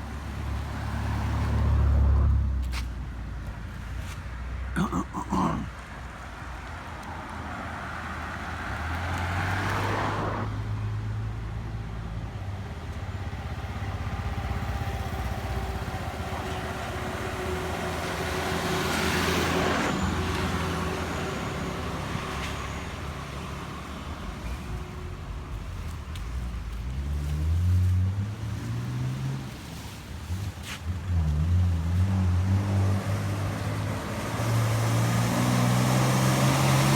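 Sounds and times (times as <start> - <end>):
heavy equipment engine droning: 12.6 - 28.7.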